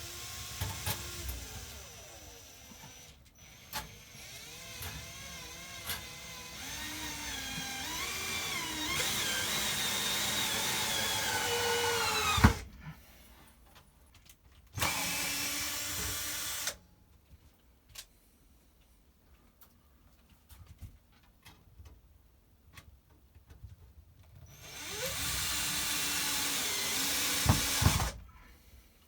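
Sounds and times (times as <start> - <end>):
power drill driving screws: 0.0 - 12.7, 14.8 - 16.8, 24.5 - 28.2.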